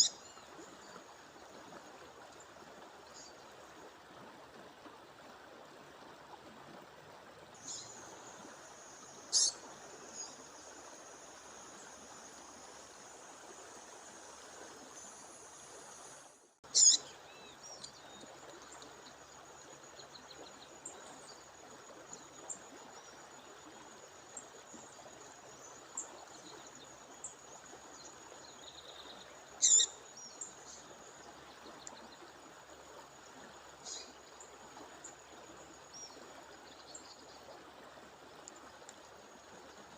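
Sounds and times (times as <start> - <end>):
bird calling: 9.3 - 9.6, 16.7 - 17.1, 29.6 - 29.9
small bird chirps: 9.3 - 9.6, 16.7 - 17.1, 29.6 - 29.9.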